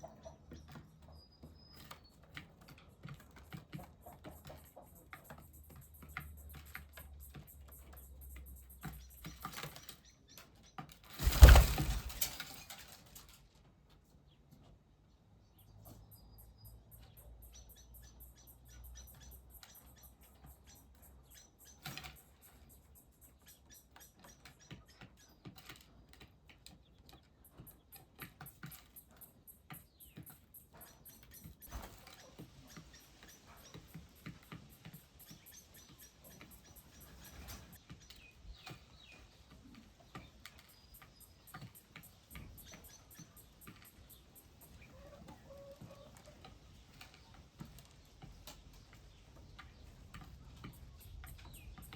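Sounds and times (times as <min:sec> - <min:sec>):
birds ticking and pattering: 0:00.0 - 0:51.9
rushing burst of wings: 0:11.1 - 0:12.7.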